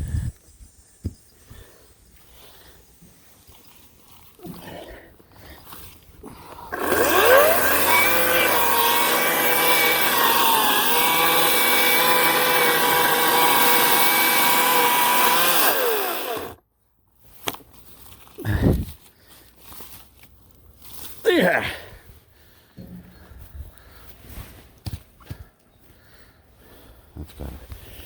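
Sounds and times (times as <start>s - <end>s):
electric chainsaw whine: 6.7s - 16.6s.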